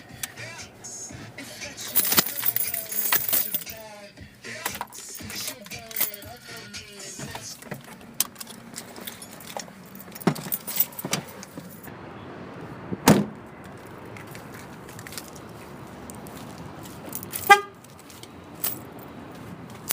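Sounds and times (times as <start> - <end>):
keys jangling: 1.7 - 3.9, 4.6 - 11.9, 14.9 - 19.9
loud thud: 13.0 - 13.4.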